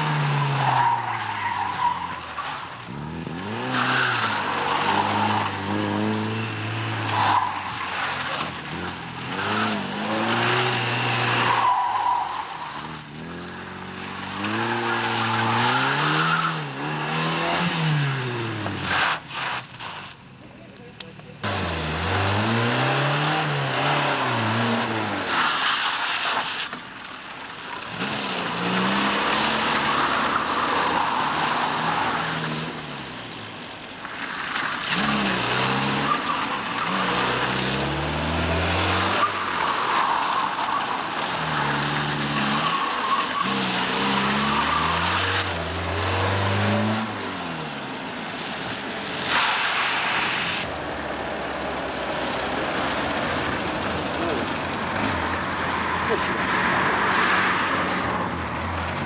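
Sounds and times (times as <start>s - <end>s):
car engine revving hard: 2.9s - 11.9s, 12.8s - 19.2s, 21.4s - 25.4s, 27.9s - 32.8s, 34.8s - 40.0s, 40.8s - 47.7s.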